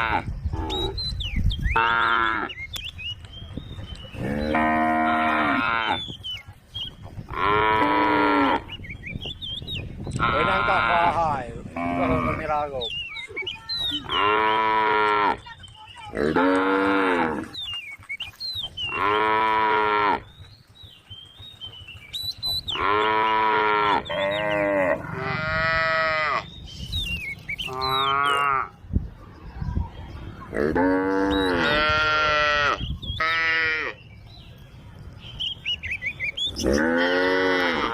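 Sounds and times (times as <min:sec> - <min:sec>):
cows mooing: 0:04.2 - 0:06.0, 0:07.3 - 0:08.7, 0:10.2 - 0:12.6, 0:14.0 - 0:15.4, 0:16.1 - 0:17.6, 0:18.9 - 0:20.3, 0:22.7 - 0:26.5, 0:27.7 - 0:28.8, 0:30.5 - 0:34.0, 0:36.6 - 0:37.9.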